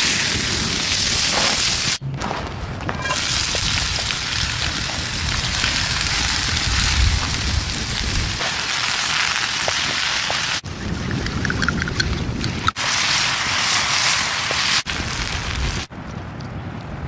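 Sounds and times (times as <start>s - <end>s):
food sizzling in a pan: 3.0s - 10.6s.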